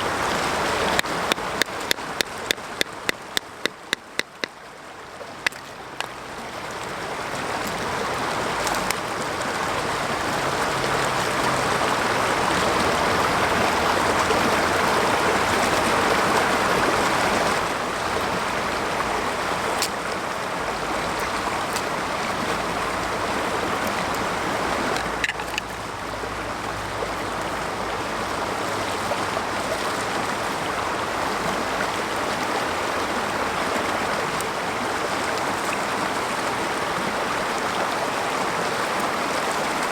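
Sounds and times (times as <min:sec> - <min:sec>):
mountain stream rushing: 0:00.0 - 0:39.9
sharp ticks: 0:01.0 - 0:04.5.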